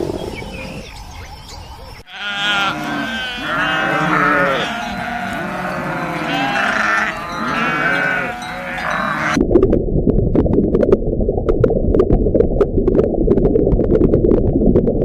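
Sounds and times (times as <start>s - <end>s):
sheep bleating: 2.0s - 9.4s.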